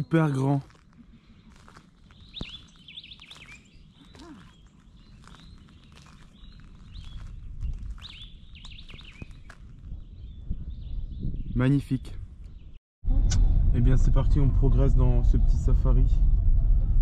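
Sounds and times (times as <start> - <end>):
birds singing: 0.0 - 12.8
low rumble: 13.0 - 17.0.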